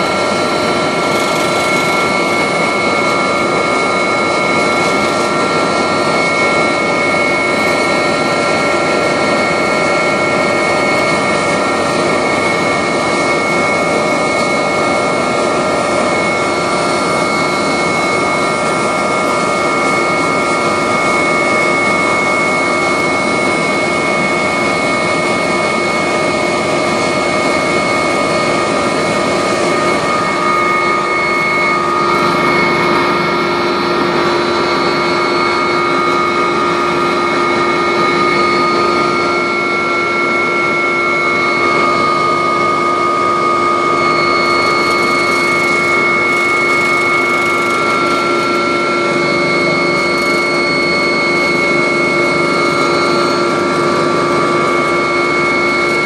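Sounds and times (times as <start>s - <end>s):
helicopter rotor and engine: 0.0s - 56.0s
high turbine whine: 0.0s - 56.0s.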